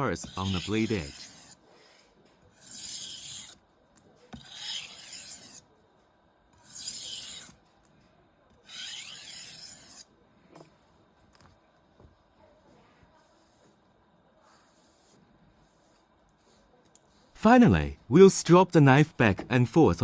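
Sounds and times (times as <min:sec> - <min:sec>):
knife scraping on honing rod: 0:00.2 - 0:01.6, 0:02.5 - 0:03.6, 0:04.4 - 0:05.7, 0:06.6 - 0:07.6, 0:08.6 - 0:10.1.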